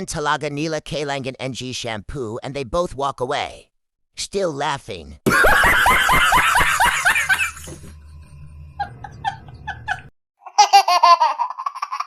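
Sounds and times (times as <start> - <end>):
men laughing: 5.3 - 8.0, 8.8 - 10.1.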